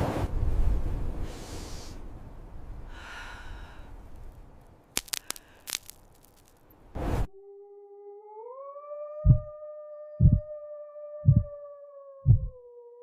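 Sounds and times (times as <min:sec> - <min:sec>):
blizzard wind gusting: 0:00.0 - 0:04.6
sharp cracks: 0:04.2 - 0:06.8.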